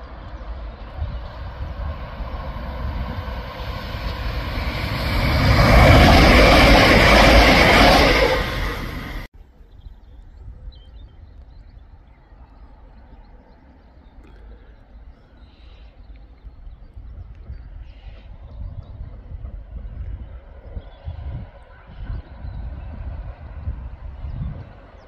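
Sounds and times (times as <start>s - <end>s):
train passing at speed: 0.0s - 9.3s, 18.0s - 25.0s.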